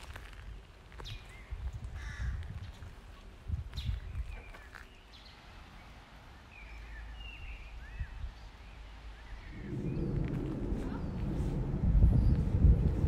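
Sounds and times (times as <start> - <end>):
low steady rumble: 9.4 - 13.0.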